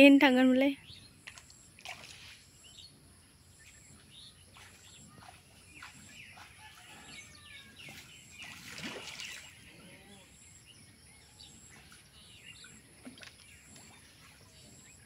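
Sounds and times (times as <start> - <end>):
birds chirping: 0.1 - 15.0
water splashes from hands: 8.4 - 9.5.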